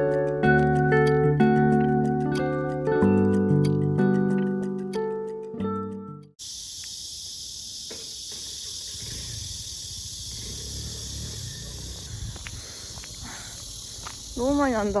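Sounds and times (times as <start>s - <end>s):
crickets chirping: 6.4s - 15.0s.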